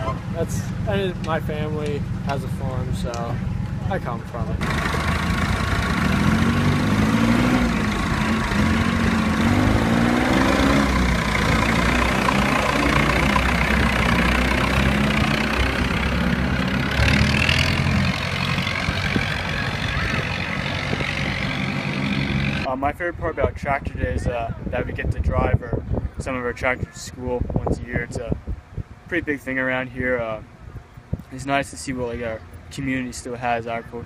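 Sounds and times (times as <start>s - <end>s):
tractor engines revving: 0.0s - 22.8s.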